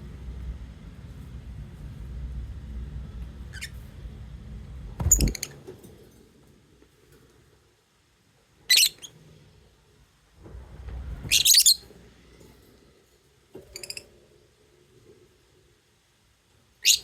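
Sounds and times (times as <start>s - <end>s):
low rumbling noise: 0.0s - 5.7s, 9.9s - 13.4s.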